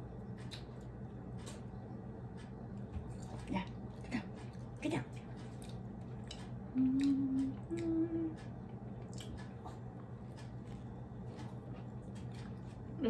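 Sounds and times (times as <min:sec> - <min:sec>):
person humming: 0:06.7 - 0:08.4
chewing mouth clicks: 0:09.0 - 0:09.8.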